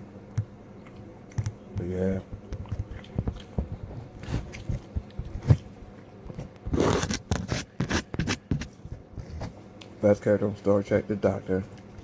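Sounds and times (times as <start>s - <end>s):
chewing and mouth smacks: 0.4s - 6.6s.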